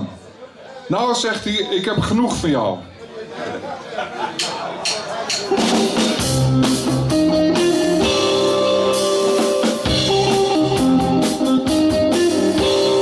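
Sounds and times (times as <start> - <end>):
drum kit steady beat: 4.4 - 13.0
bass guitar: 5.5 - 13.0
electric guitar: 5.5 - 13.0.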